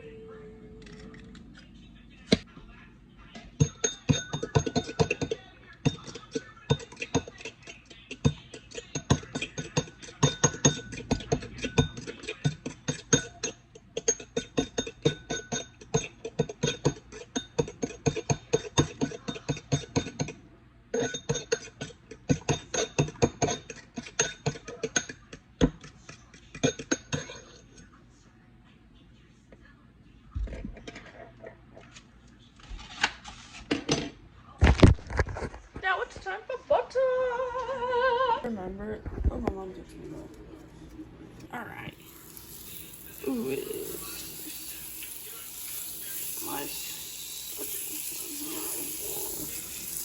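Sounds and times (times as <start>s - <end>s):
fork beating eggs in bowl: 3.5s - 27.8s, 40.2s - 50.0s.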